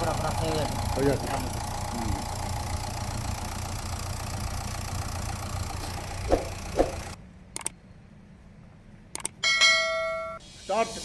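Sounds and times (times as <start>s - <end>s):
car engine idling: 0.0s - 7.2s
short knocks: 6.2s - 7.2s.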